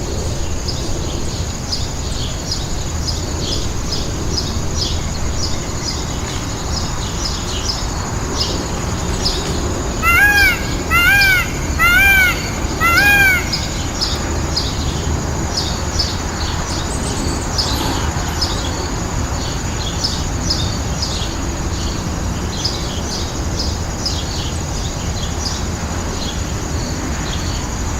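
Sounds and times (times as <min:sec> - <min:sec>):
low background noise: 0:00.0 - 0:27.9
small birds chirping: 0:01.7 - 0:18.6
harsh bird calls: 0:08.4 - 0:15.1.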